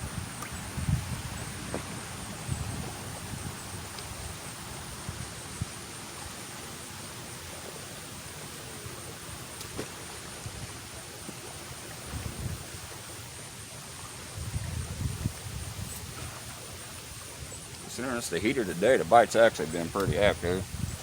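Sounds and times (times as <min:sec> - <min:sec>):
wind buffeting microphone: 0:00.0 - 0:05.8, 0:12.0 - 0:12.8, 0:14.3 - 0:21.0
steady high hiss: 0:00.0 - 0:21.0.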